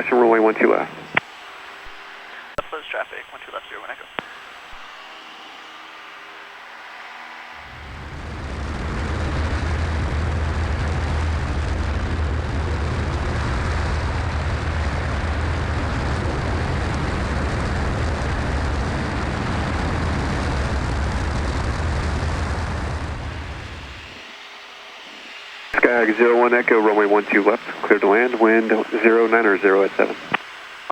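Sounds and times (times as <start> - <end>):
propeller plane engine droning: 0.0 - 30.9
airflow noise in cabin: 7.5 - 30.9.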